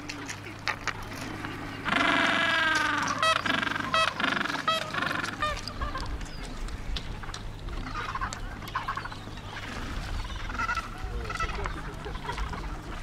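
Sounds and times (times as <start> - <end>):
low hum and rumble: 0.0 - 13.0
honking bird calls: 1.8 - 6.2, 7.7 - 13.0.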